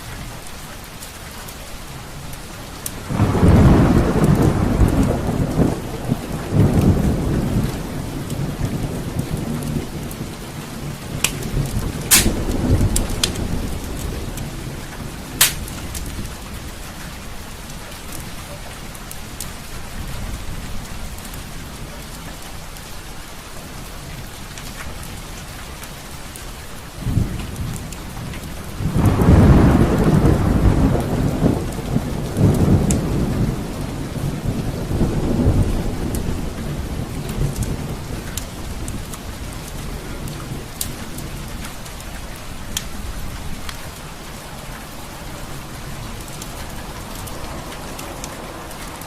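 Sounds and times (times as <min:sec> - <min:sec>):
steady rain: 0:00.0 - 0:49.0
rolling thunder: 0:03.0 - 0:16.7, 0:27.0 - 0:41.6
sharp crackles: 0:11.2 - 0:14.1, 0:15.4 - 0:16.2.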